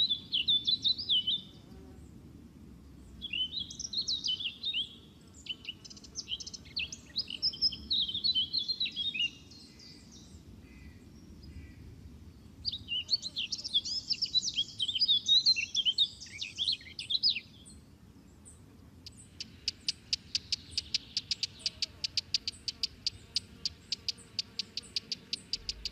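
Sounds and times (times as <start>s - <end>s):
songbirds chirping: 0.0s - 25.9s
short ticking bird chirps: 19.1s - 25.9s.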